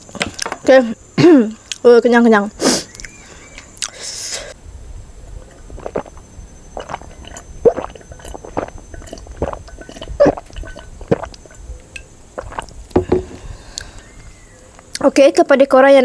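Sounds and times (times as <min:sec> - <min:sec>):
person gulping a drink: 0:05.2 - 0:15.2.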